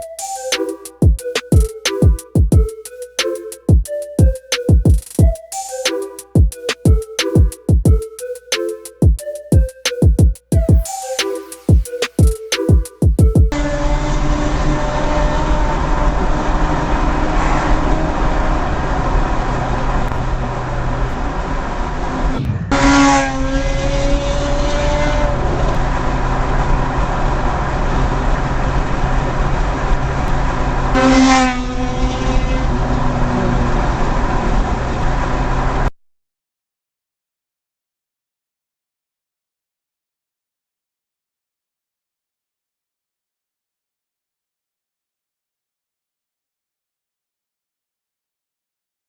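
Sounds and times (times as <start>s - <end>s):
traffic road noise: 13.6s - 35.9s
loud car horn blast: 31.0s - 32.6s.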